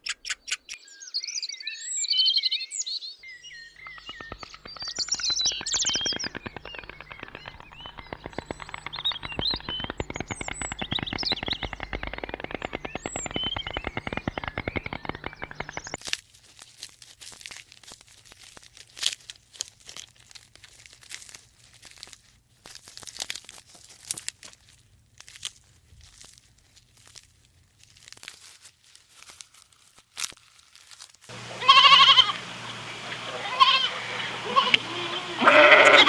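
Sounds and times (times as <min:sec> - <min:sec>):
crunching and crackling clicks: 0:03.7 - 0:31.3
wavering animal bleat: 0:31.6 - 0:32.4, 0:33.3 - 0:36.0.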